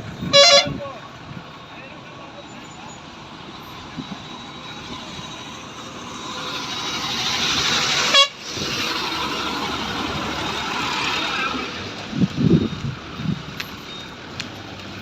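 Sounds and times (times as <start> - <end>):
vehicle passing by: 3.0 - 15.0.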